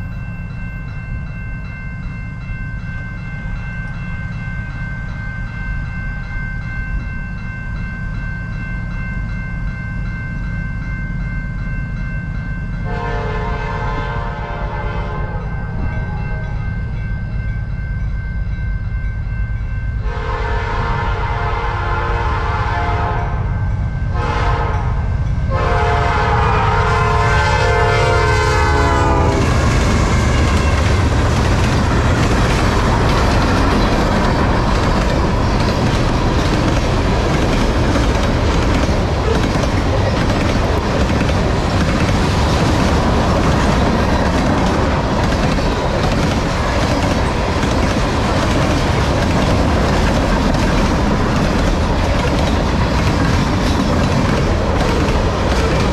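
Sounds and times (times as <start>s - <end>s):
locomotive air horn: 12.8s - 16.6s, 20.0s - 23.5s, 24.2s - 24.9s, 25.5s - 30.5s
train wheels clacking on rails: 27.7s - 55.9s.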